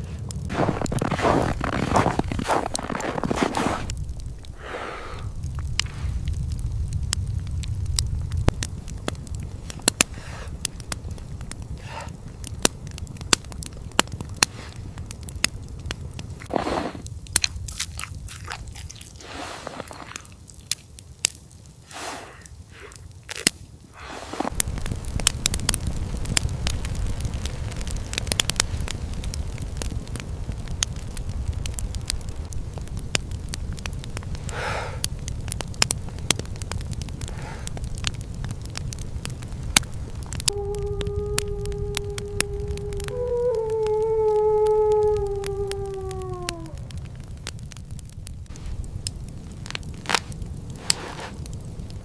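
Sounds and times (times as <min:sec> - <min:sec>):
soft crunches: 0:00.0 - 0:04.0, 0:16.4 - 0:20.8, 0:21.9 - 0:24.6, 0:49.7 - 0:51.4
low rumble: 0:00.0 - 0:19.7, 0:24.0 - 0:34.5, 0:35.1 - 0:50.9
wood fire crackling and popping: 0:00.0 - 0:52.0.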